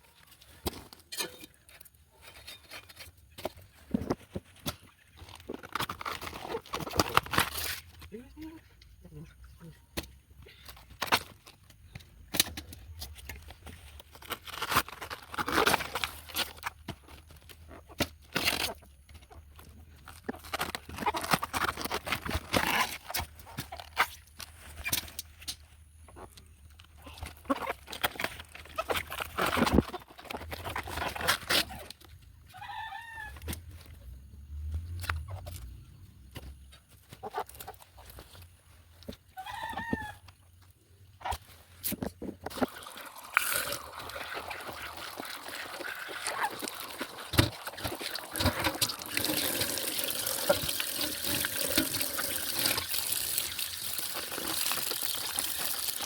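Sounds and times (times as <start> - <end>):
running water trickling: 42.7 - 56.0.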